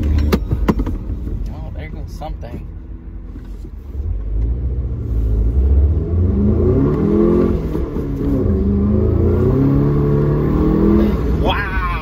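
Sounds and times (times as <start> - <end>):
car engine accelerating hard: 3.2 - 12.0.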